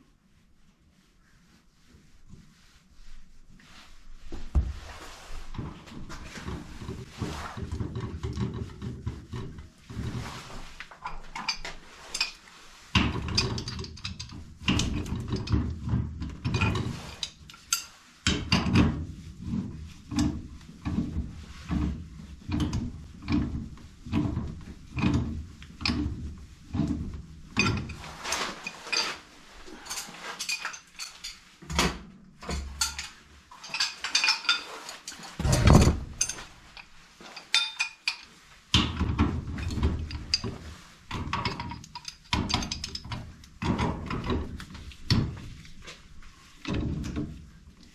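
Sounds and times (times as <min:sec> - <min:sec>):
tools and metal clanking: 0:11.0 - 0:45.4.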